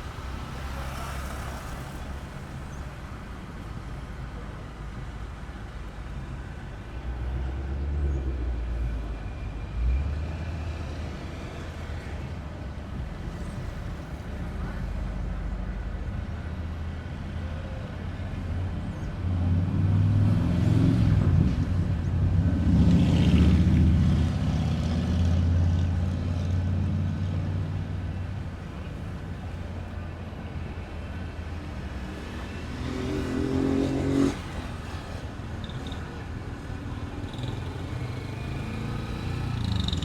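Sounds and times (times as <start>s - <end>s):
motor engine passing by: 32.2s - 35.1s.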